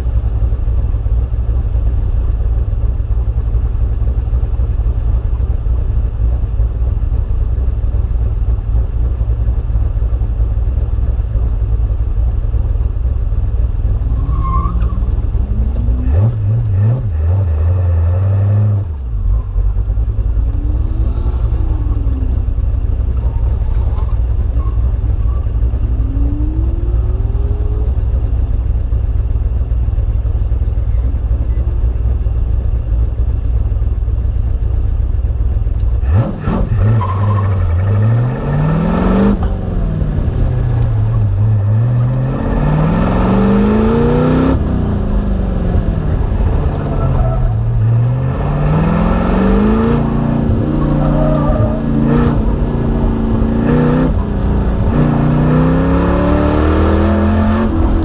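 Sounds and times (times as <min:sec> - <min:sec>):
sports car engine revving: 0:13.4 - 0:32.4, 0:35.4 - 0:58.0.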